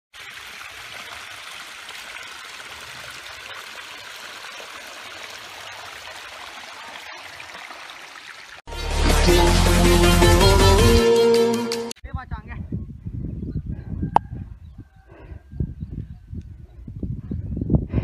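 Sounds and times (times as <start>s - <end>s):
water trickling over rock: 0.1s - 8.6s.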